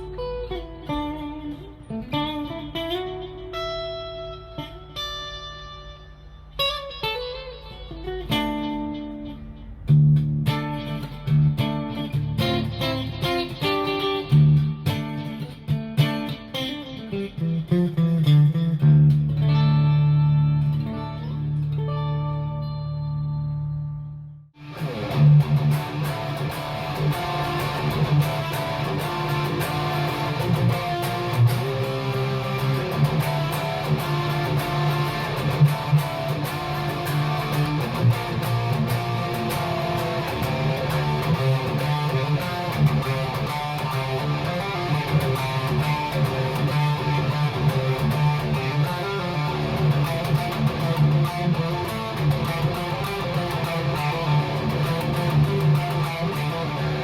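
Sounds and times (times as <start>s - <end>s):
electric guitar playing: 0.0s - 57.0s.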